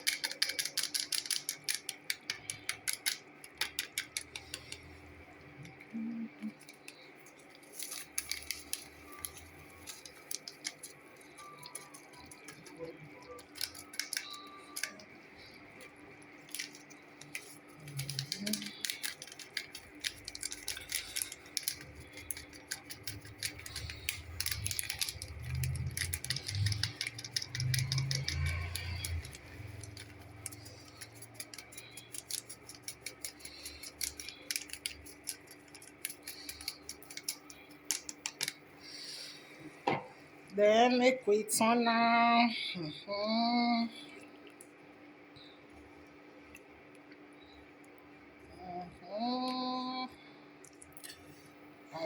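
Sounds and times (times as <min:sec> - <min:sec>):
containers and utensils clicking: 0:00.0 - 0:05.9, 0:06.5 - 0:38.6.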